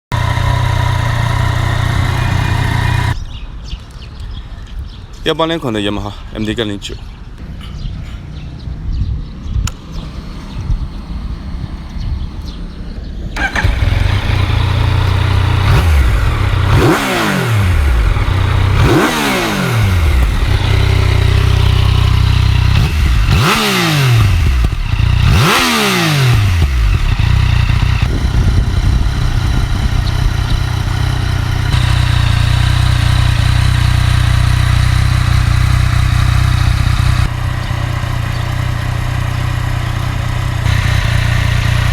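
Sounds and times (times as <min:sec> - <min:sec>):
motorcycle engine revving and idling: 0:00.0 - 0:03.2, 0:07.4 - 0:41.9
engine starter clatter: 0:13.4 - 0:15.0.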